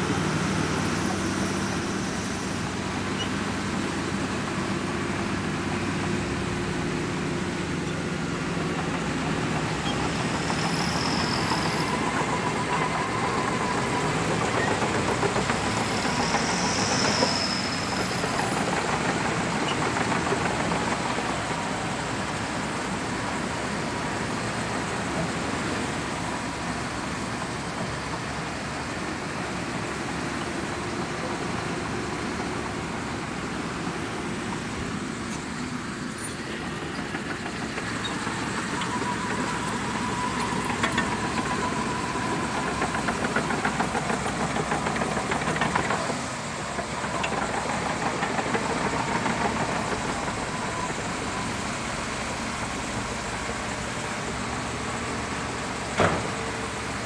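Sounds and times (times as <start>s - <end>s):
bulldozer diesel engine running: 0.0s - 57.0s
rapid clatter: 8.4s - 22.3s, 36.2s - 51.4s.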